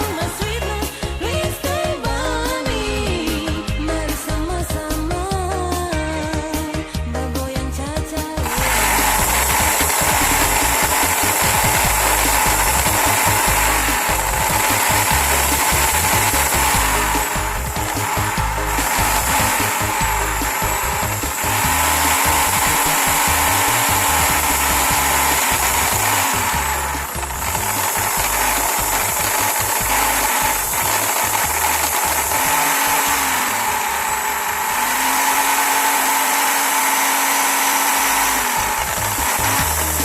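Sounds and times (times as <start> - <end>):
electric drill motor whine: 8.4 - 40.0.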